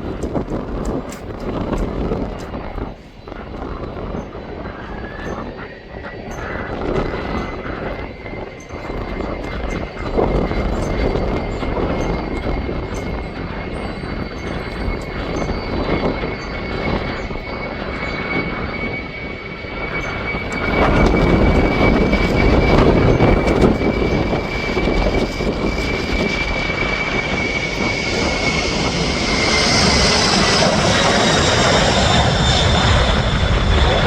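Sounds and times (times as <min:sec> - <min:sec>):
jet engines whining: 0:00.0 - 0:34.0.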